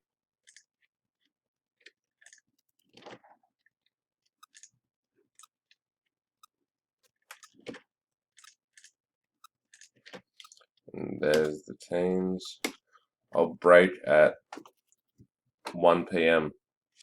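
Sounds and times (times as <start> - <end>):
faint clicks and handling noises: 6.4 - 11.6.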